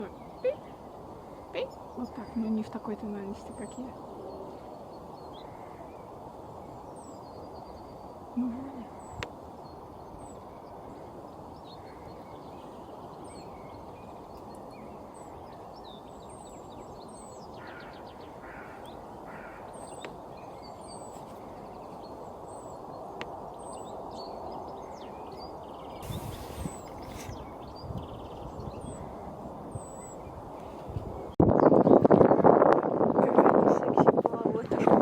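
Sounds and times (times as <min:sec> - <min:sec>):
small birds chirping: 0:00.0 - 0:35.0
buzzy bird calls: 0:25.8 - 0:31.3.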